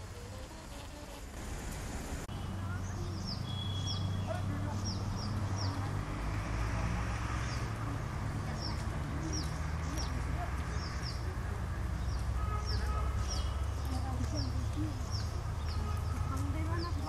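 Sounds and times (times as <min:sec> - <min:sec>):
falling water rushing: 0:00.0 - 0:02.3.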